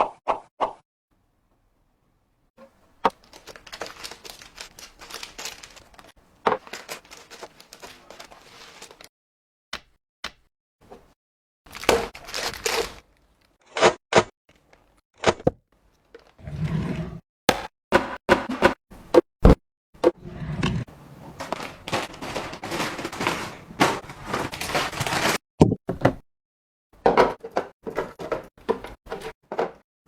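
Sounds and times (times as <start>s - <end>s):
crinkling: 2.6s - 9.1s, 11.7s - 13.8s, 20.9s - 25.4s
rustling and scraping: 2.6s - 9.1s, 20.1s - 25.4s.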